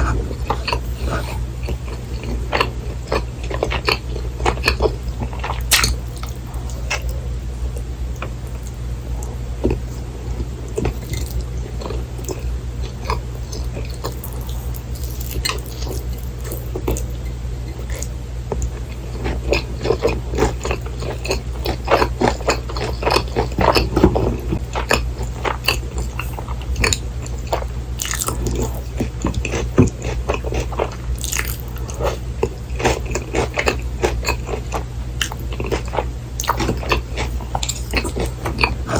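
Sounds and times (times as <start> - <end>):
steady low hum: 0.0 - 38.9
crunchy bites and wet chewing: 0.5 - 7.2, 10.7 - 17.1, 17.9 - 38.9.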